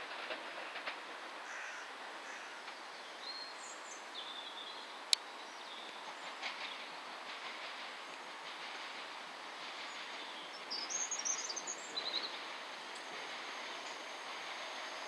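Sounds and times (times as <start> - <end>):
distant train rail noise: 0.0 - 15.0.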